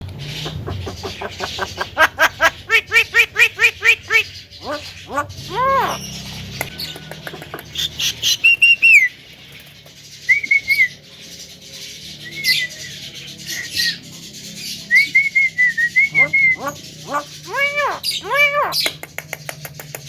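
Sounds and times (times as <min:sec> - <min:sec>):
myna calling: 0:00.1 - 0:09.1, 0:16.0 - 0:19.0.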